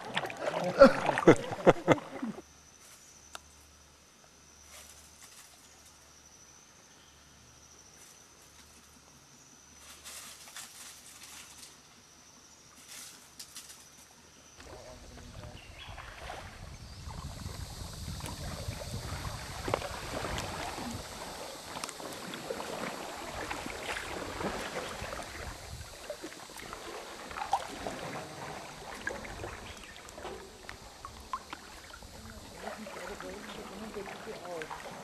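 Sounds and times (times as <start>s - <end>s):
water splashing around canoe: 0.0s - 2.4s, 14.6s - 35.0s
wind rumble on microphone: 14.6s - 32.9s.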